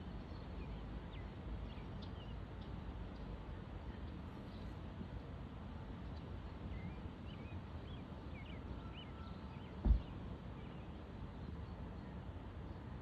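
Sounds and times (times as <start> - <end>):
faint bird chirps: 6.7 - 12.2
sudden thump: 9.8 - 10.1.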